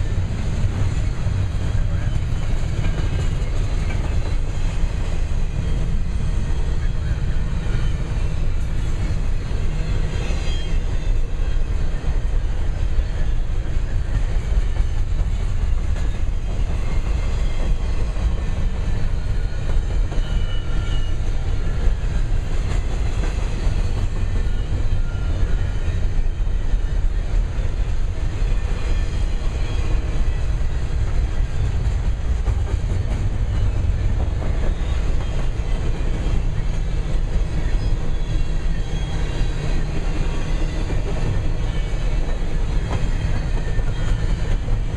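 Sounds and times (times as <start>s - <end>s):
freight train rumbling past: 0.0s - 44.9s
faint high squeals: 0.1s - 11.9s, 12.6s - 22.0s, 22.8s - 31.6s, 33.3s - 44.9s.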